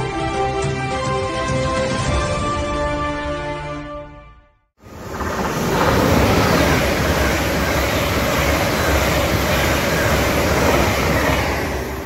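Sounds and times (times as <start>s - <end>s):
train rushing past with deep rumble: 4.8s - 12.0s.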